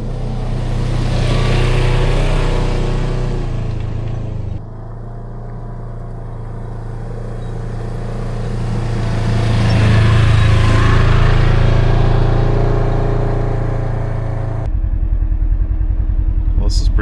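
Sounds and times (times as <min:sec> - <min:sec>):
utility vehicle engine running: 0:00.0 - 0:17.0.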